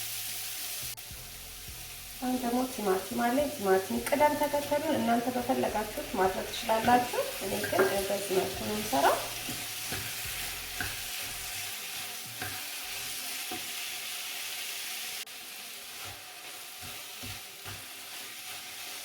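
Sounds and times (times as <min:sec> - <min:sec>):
vegetables sizzling in a pan: 0:00.0 - 0:19.0
spoon stirring and knocking pan: 0:02.4 - 0:13.8, 0:15.9 - 0:19.0.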